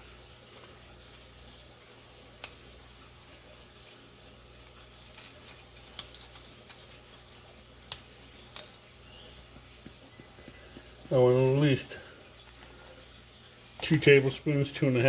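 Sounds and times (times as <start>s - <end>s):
small ticks: 2.4s - 2.6s.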